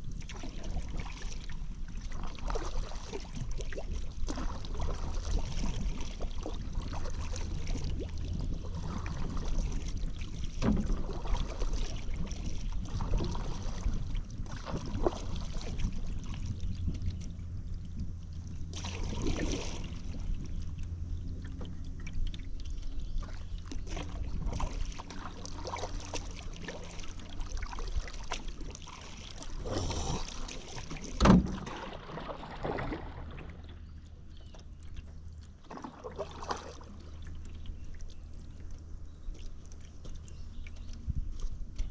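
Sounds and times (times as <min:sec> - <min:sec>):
paddle splashing in water: 0:00.1 - 0:17.4, 0:18.6 - 0:41.9
low rumble: 0:03.2 - 0:41.9.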